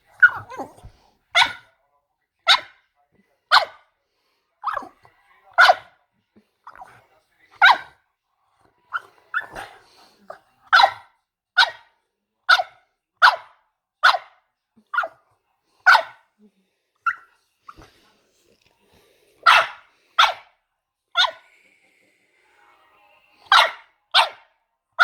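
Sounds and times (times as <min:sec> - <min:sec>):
dog giving squealing barks: 0:00.2 - 0:00.8, 0:23.5 - 0:24.4.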